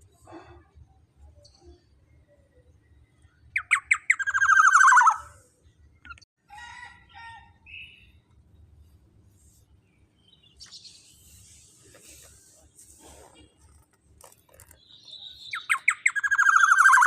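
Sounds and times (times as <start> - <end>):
bird calling with harsh chatter: 3.3 - 5.4, 13.4 - 17.0.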